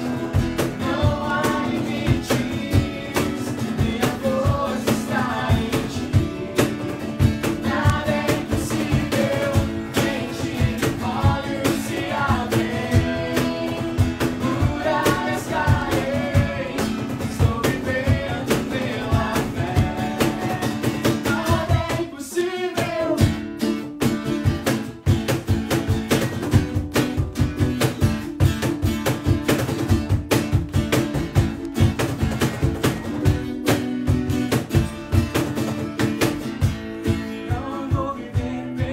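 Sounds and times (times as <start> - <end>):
person singing: 0.0 - 23.4, 37.4 - 38.9
guitar with steady beat: 0.0 - 38.9.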